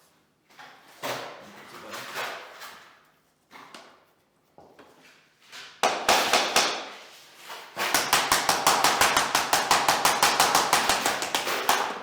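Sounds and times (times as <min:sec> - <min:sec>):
flooring planks being tapped: 0:07.8 - 0:12.0.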